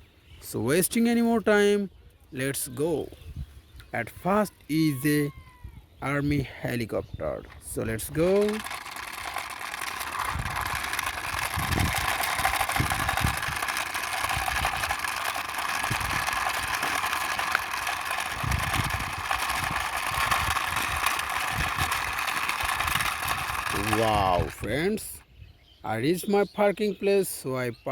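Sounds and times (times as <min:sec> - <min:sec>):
plastic toy rattling and clicking: 0:07.4 - 0:25.2.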